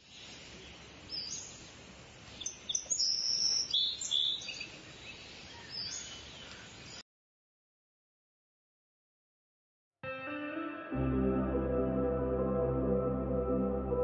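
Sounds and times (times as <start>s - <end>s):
soft outdoor hiss: 0.0s - 7.0s
birds chirping and whistling: 2.4s - 7.0s.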